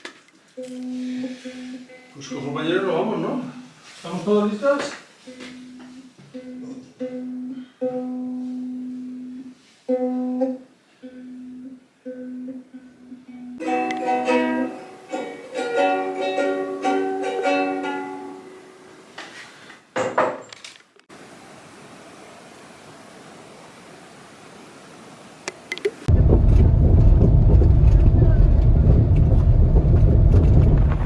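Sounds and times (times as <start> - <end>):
light acoustic music with plucked strings: 13.6 - 18.7.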